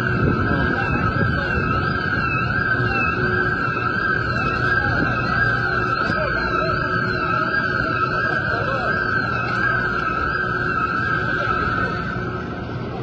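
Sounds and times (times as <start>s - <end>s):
rushing sandstorm wind: 0.0s - 5.8s
siren wailing: 0.0s - 13.0s.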